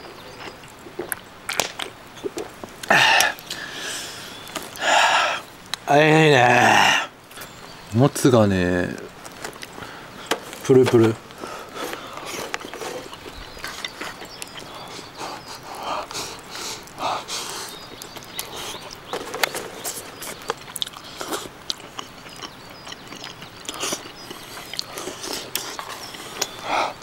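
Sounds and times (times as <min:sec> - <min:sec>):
chewing and lip-smacking: 0:11.8 - 0:27.0.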